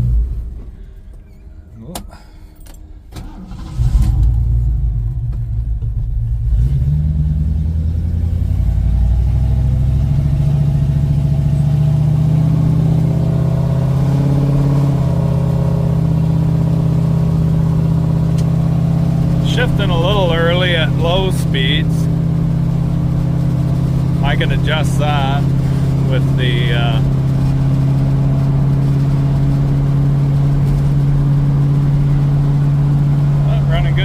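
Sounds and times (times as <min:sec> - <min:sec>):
car engine accelerating: 0:03.1 - 0:34.0.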